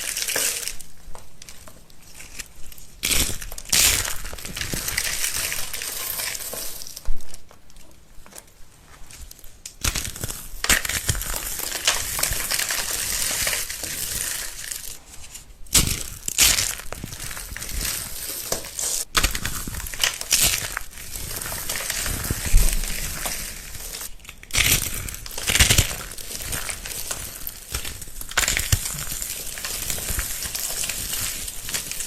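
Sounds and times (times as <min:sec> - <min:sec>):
brittle material crunching: 0:00.0 - 0:08.4, 0:09.1 - 0:32.0.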